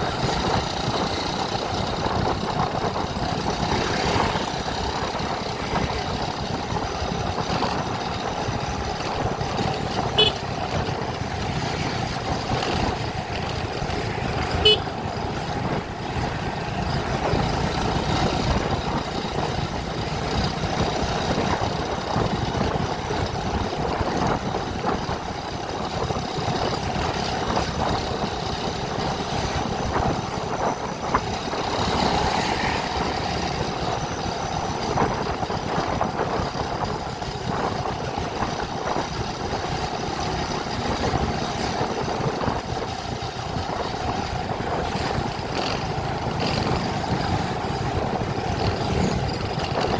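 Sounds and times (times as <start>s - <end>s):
vehicle engine and road noise: 0.0s - 49.9s.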